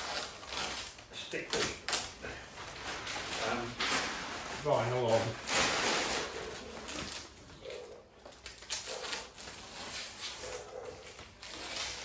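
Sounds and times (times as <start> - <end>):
pigeon cooing: 6.2 - 8.0.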